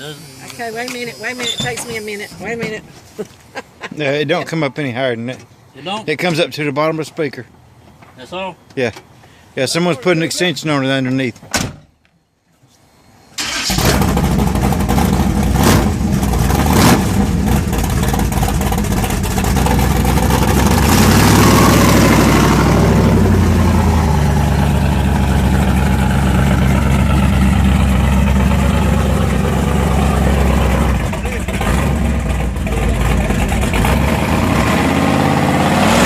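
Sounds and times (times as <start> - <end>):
vehicle engine starting and revving: 13.4 - 36.0.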